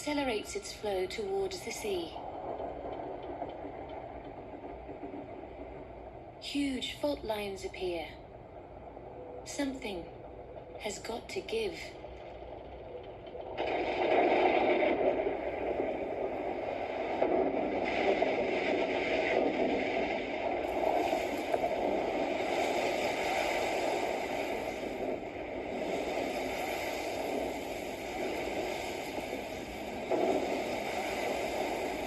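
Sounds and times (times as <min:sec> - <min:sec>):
rushing meltwater and moving ice: 0:13.6 - 0:32.0.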